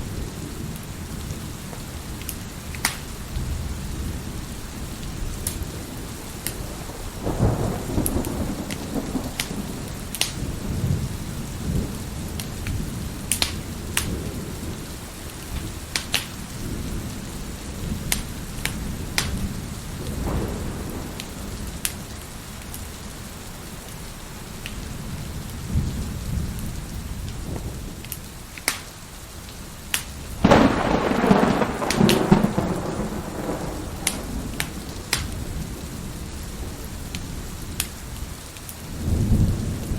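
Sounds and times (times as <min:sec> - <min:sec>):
steady rain: 0:00.0 - 0:39.9
wood fire crackling and popping: 0:01.7 - 0:03.3, 0:05.4 - 0:05.7, 0:08.0 - 0:10.4, 0:12.3 - 0:14.2, 0:15.3 - 0:16.4, 0:18.1 - 0:20.2, 0:28.0 - 0:29.0, 0:29.9 - 0:35.5, 0:37.1 - 0:38.9
rolling thunder: 0:02.7 - 0:22.2, 0:24.9 - 0:28.0, 0:30.2 - 0:39.9.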